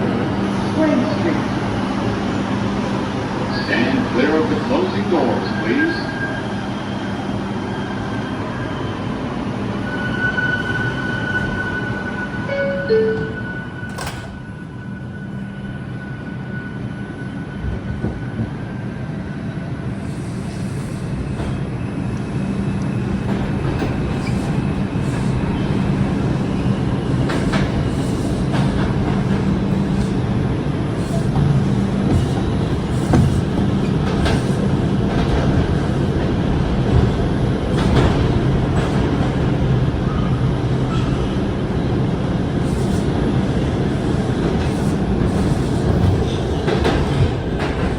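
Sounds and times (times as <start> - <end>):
subway train running noise: 0.0 - 47.9
two-note door chime: 12.5 - 14.0.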